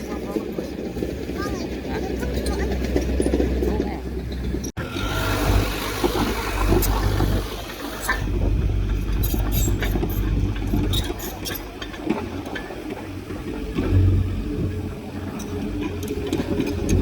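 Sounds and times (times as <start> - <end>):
diesel engine low rumble: 0.0 - 17.0
machinery clanks and knocks: 0.0 - 17.0.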